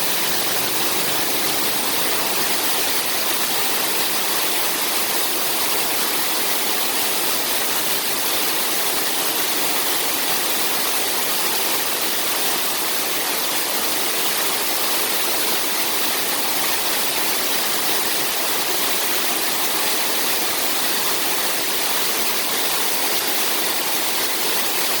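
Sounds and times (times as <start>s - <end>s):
waterfall rushing water: 0.0s - 6.5s.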